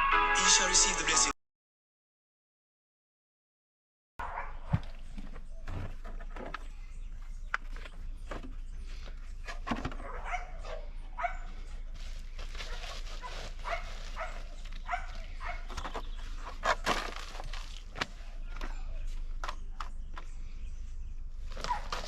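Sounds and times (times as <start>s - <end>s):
dog barking and yipping: 4.2s - 4.8s, 10.0s - 11.6s, 12.7s - 15.8s, 21.6s - 22.0s.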